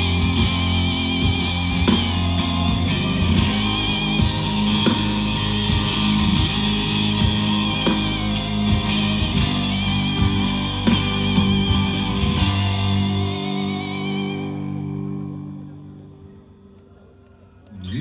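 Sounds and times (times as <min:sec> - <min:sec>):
steady drum beat: 0:00.0 - 0:14.1
bass guitar: 0:00.0 - 0:16.5
electric guitars: 0:00.0 - 0:17.3.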